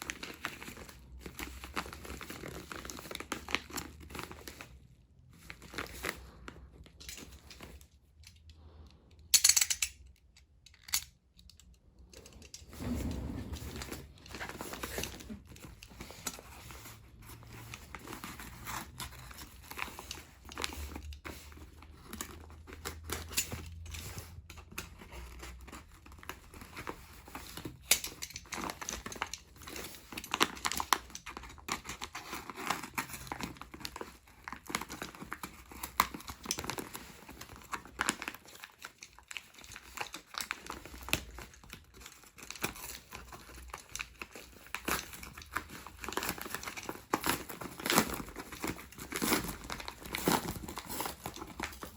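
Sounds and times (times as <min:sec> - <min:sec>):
plastic packaging crinkling: 0:00.0 - 0:08.0, 0:24.2 - 0:51.9
plastic tearing: 0:24.2 - 0:51.9.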